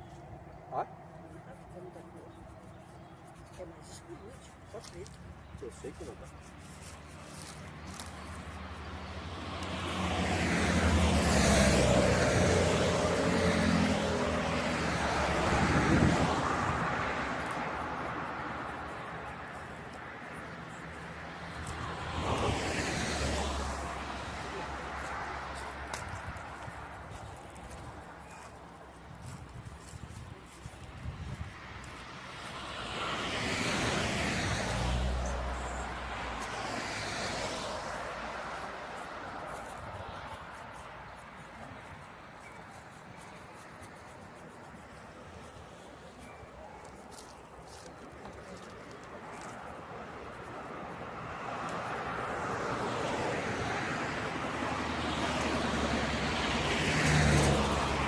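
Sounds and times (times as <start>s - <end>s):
vehicle passing by: 7.4s - 28.5s, 30.9s - 41.0s, 46.8s - 58.0s.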